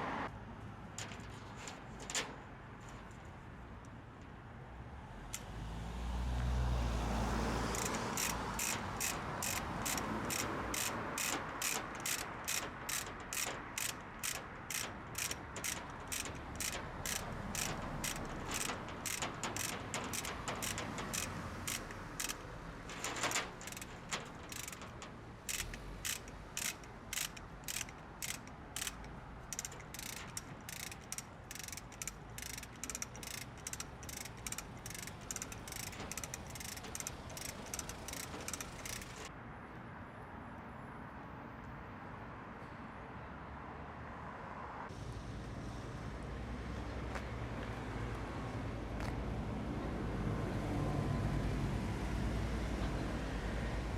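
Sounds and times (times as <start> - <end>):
hoist ratchet clicking: 1.0 - 2.4, 7.7 - 39.3.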